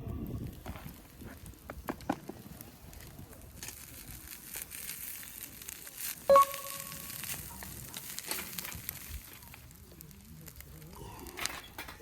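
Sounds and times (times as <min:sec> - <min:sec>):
food sizzling in a pan: 0:03.6 - 0:11.0.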